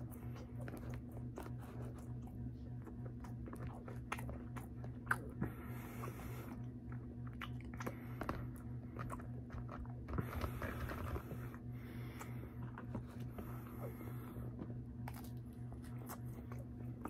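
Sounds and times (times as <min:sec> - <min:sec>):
low steady hum: 0:00.0 - 0:17.0
person chewing food: 0:00.0 - 0:17.0.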